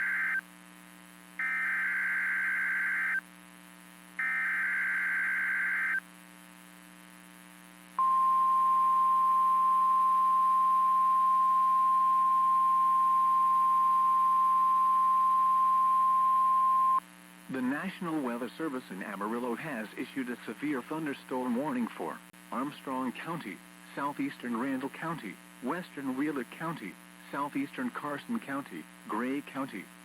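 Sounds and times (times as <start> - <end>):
steady alarm tone: 1.4 - 3.2, 4.2 - 6.0, 8.0 - 17.0.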